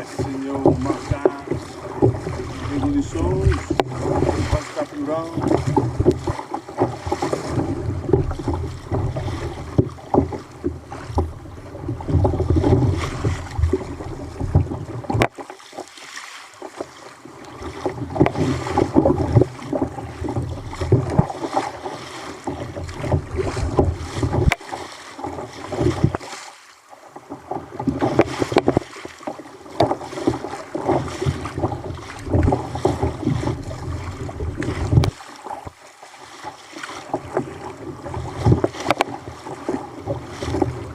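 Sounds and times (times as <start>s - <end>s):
wind buffeting microphone: 0.0s - 6.4s
water slapping against a kayak: 0.0s - 40.9s.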